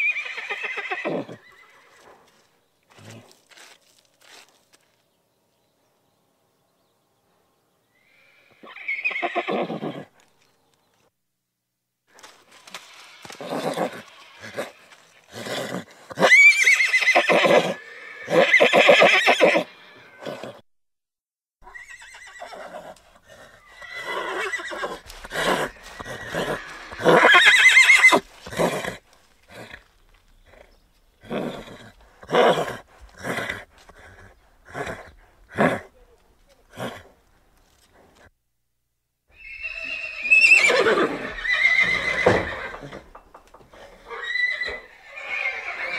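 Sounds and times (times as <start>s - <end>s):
horse whinnying: 0.0s - 2.0s, 8.0s - 10.2s, 12.6s - 20.6s, 21.6s - 36.0s, 39.3s - 45.9s.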